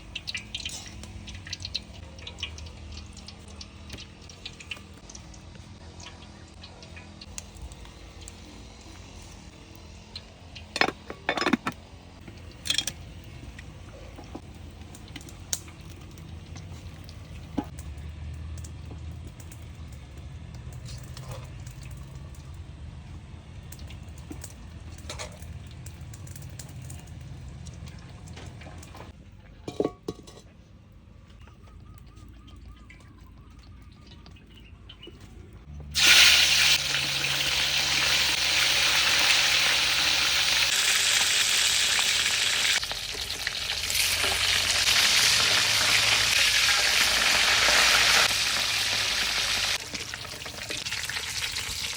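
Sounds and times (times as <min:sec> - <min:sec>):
cookware clinking: 0:10.8 - 0:11.8, 0:29.6 - 0:30.5.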